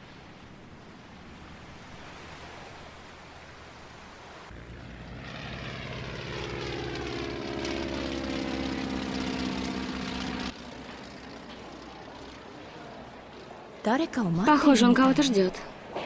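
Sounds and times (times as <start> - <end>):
aircraft engine passing by: 4.4 - 15.8.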